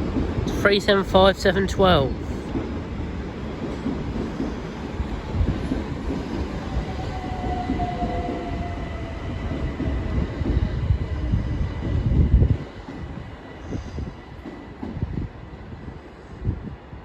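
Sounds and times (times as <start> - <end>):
train wheels rumbling: 0.0 - 16.6.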